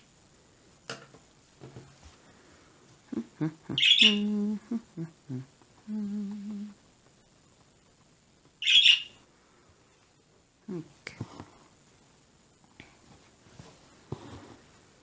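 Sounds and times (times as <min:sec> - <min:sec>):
woman humming: 0:03.1 - 0:06.8, 0:10.6 - 0:11.2.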